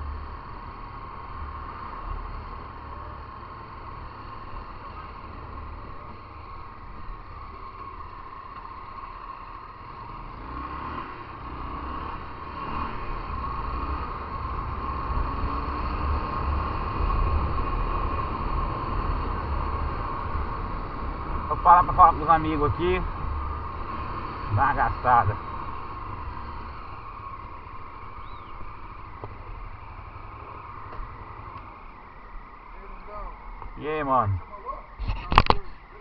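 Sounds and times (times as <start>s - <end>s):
motorcycle engine running: 0.0s - 33.7s
wind rumbling on microphone: 33.5s - 35.7s.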